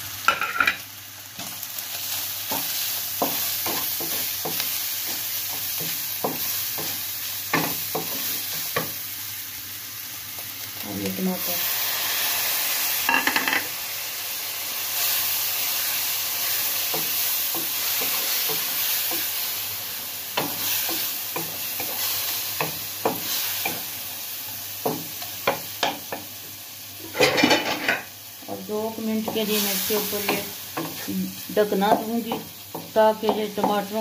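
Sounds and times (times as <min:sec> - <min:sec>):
food sizzling in oil: 0:00.0 - 0:34.0.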